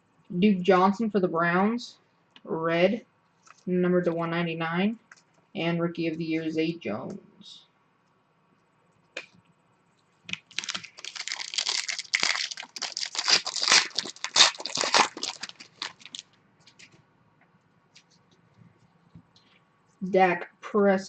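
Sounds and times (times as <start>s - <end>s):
foil wrapper tearing and crinkling: 10.3s - 16.9s.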